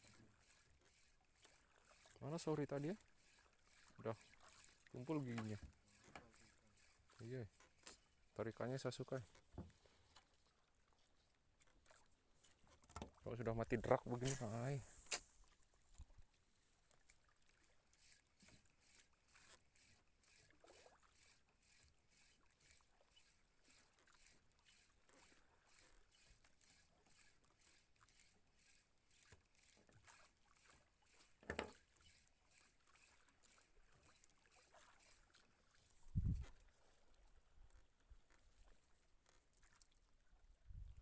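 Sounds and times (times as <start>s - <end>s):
fishing reel ticking: 0.0s - 9.2s, 13.2s - 15.4s, 17.0s - 36.4s.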